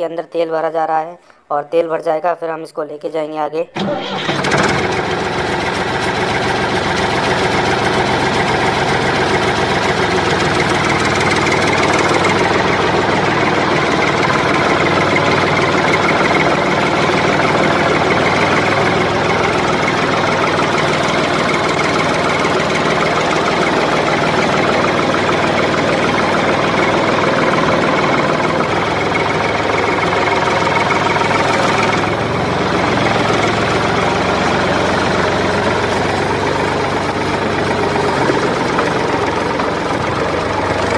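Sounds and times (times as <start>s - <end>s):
tractor engine running: 3.7s - 40.9s.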